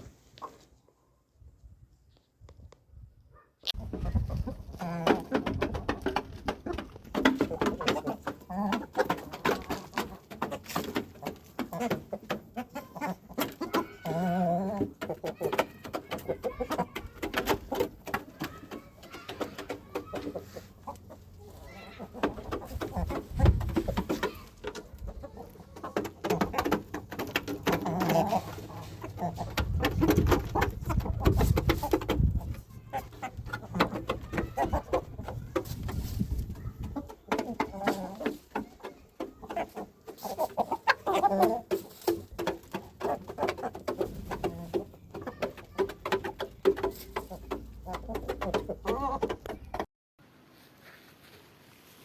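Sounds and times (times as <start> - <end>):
birds cooing and clucking: 3.8 - 49.9
clicks and knocks: 25.7 - 40.2, 41.6 - 49.9.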